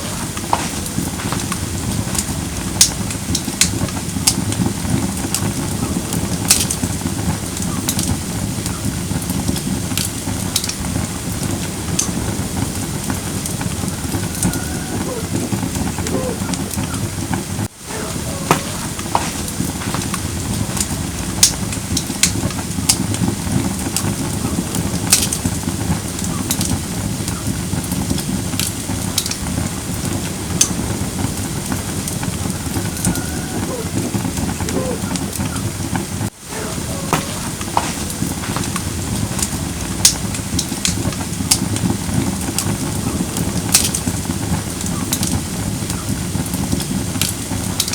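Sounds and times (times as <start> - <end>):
fire rushing: 0.0 - 47.9
firewood crackling and popping: 0.0 - 47.9.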